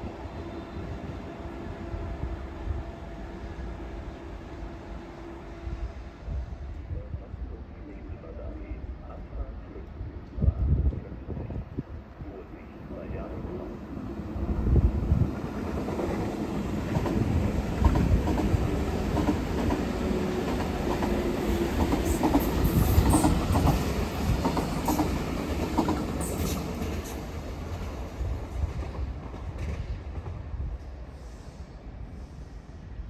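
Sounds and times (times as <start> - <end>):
train wheels clattering over rails: 15.4 - 30.4.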